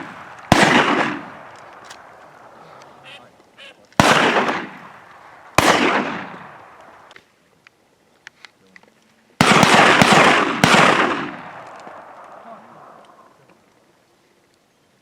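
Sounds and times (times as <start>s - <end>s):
shotgun shots: 0.0s - 2.1s, 4.0s - 6.8s, 9.4s - 12.4s.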